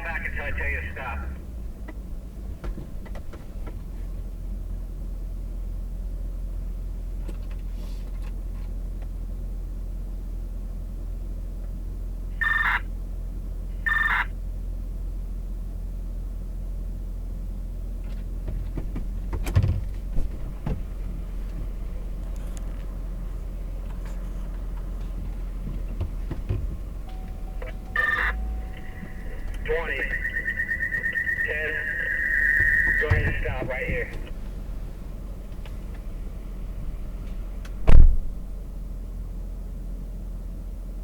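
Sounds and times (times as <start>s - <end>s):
truck engine humming: 0.0s - 7.1s, 9.6s - 41.0s
short electronic beeps: 12.4s - 12.7s, 13.9s - 14.2s, 27.1s - 34.3s.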